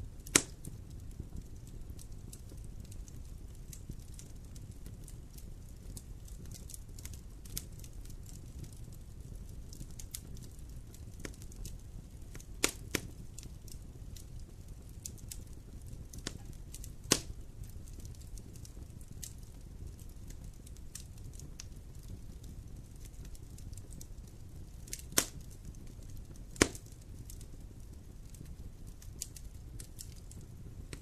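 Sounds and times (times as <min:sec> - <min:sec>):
campfire crackling: 0:00.0 - 0:31.0
low fire rumble: 0:00.0 - 0:31.0
sharp wood pops: 0:00.3 - 0:00.6, 0:17.1 - 0:17.3, 0:26.6 - 0:26.8.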